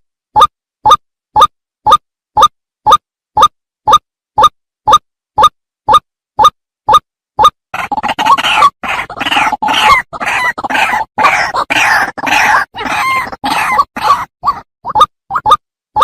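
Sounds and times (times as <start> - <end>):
waterhen calling: 7.8 - 15.6.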